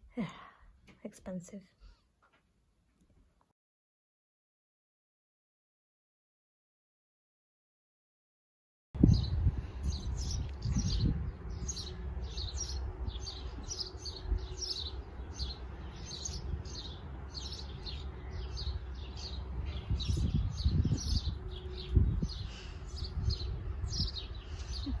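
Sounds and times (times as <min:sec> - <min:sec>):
small birds chirping: 0:09.0 - 0:25.0.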